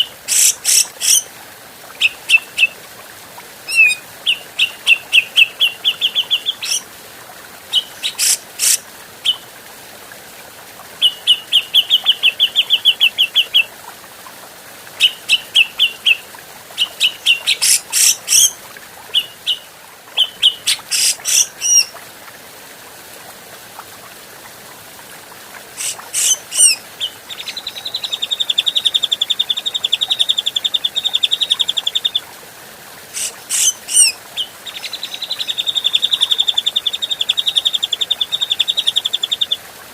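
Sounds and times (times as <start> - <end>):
bird chattering: 25.8 - 26.8.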